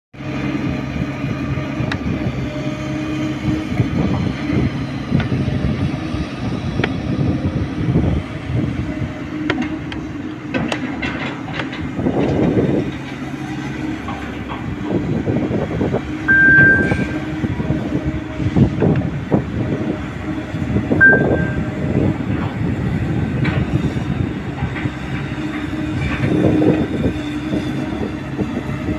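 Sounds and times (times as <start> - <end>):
excavator engine running: 0.2 - 28.9
metallic clanks and knocks: 10.5 - 13.1
brief high squeals: 16.3 - 17.2.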